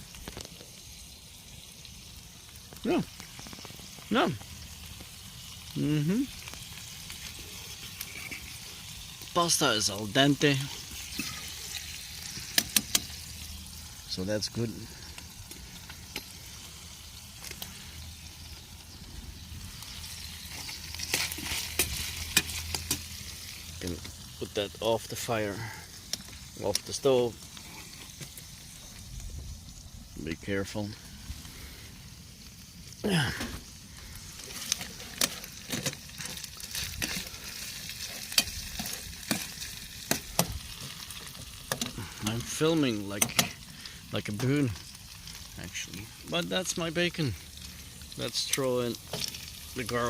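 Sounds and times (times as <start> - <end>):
sizzling hiss: 0.0 - 50.0.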